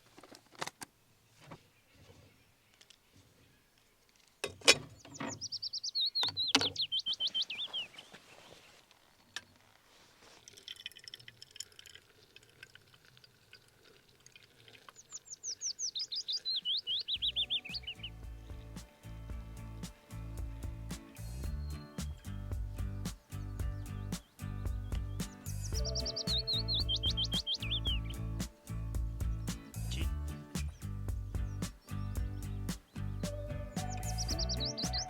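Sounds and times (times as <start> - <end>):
songbird singing: 1.2 - 9.7, 14.8 - 35.0
soft background music: 17.2 - 35.0.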